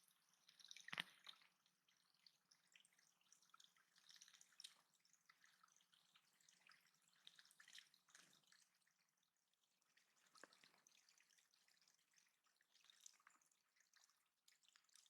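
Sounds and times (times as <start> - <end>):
water dripping and trickling: 0.0 - 15.0.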